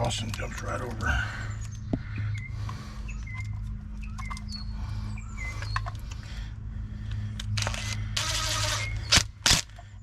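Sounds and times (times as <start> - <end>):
steady low hum: 0.0 - 10.0
small birds chirping and whistling: 0.8 - 6.5, 8.6 - 9.3.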